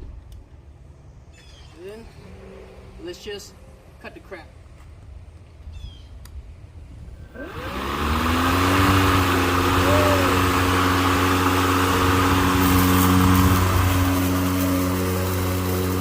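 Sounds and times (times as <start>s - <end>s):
electric lawn mower running: 7.2s - 16.0s.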